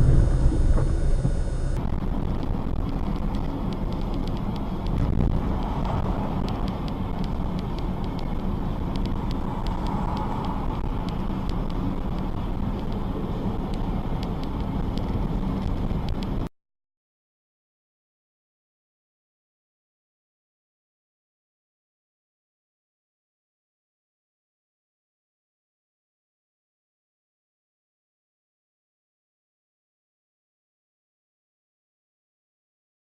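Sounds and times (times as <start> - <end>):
vehicle engine and road noise: 0.0 - 16.5.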